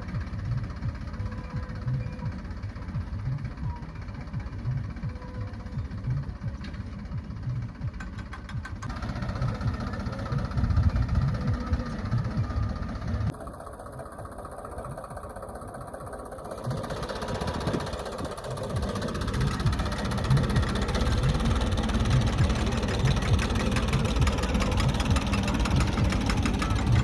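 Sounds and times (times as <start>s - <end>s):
diesel tractor engine running: 0.0s - 27.0s.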